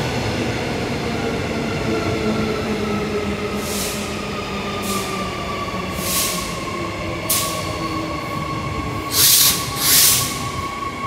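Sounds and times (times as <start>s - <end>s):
train high whine: 2.1s - 11.0s
hiss bursts: 9.1s - 10.4s.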